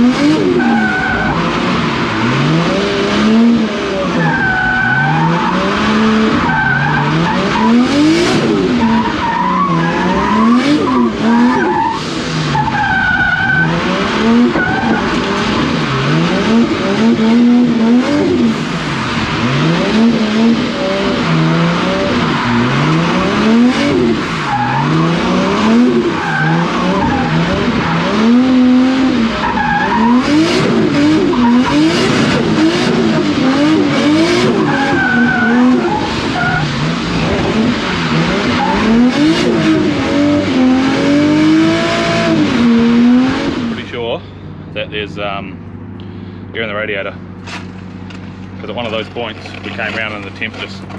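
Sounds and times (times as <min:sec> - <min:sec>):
car engine revving: 0:00.0 - 0:50.9
tyres squealing: 0:04.1 - 0:08.0, 0:24.3 - 0:36.9.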